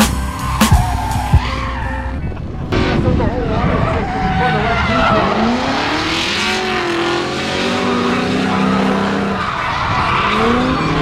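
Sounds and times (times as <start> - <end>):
tires squealing: 0.0 - 11.0
car engine revving hard: 2.7 - 11.0.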